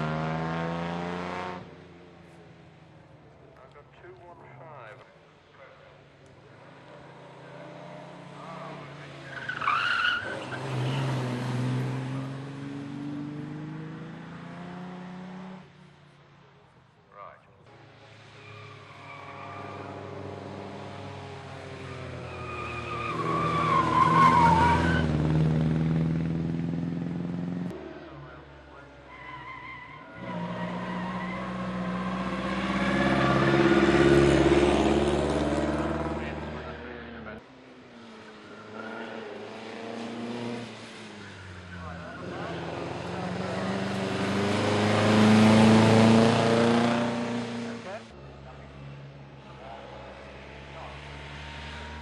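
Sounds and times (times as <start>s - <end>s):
racing car engine revving: 0.0s - 1.7s, 6.7s - 15.7s, 30.2s - 37.4s, 41.8s - 48.9s
tyre squeal: 9.3s - 11.1s, 18.4s - 19.9s, 22.2s - 25.1s.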